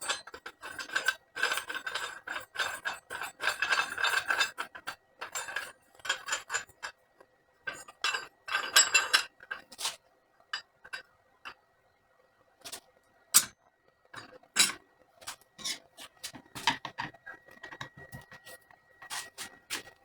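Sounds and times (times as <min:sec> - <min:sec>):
metal parts clinking and rattling: 0:00.0 - 0:06.9, 0:07.7 - 0:10.0, 0:14.2 - 0:14.8.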